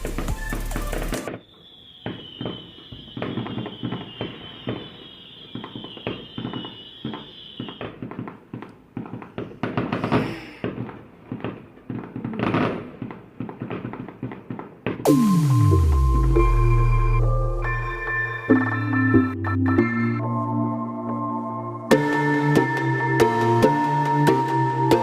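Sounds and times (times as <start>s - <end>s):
fireworks popping and cracking: 0.0s - 15.4s
fireworks crackling: 0.0s - 19.1s
high whistle: 0.3s - 8.0s, 15.1s - 20.4s.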